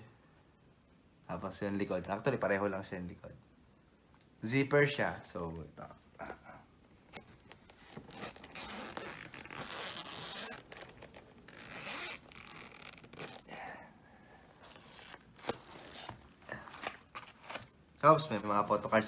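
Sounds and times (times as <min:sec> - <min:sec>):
zipper being unzipped: 0:07.8 - 0:13.6.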